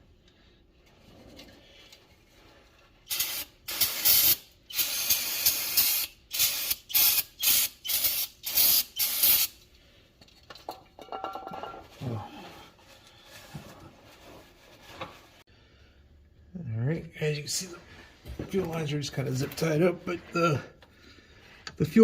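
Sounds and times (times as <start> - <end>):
wiping and handling noises: 11.8 - 15.5.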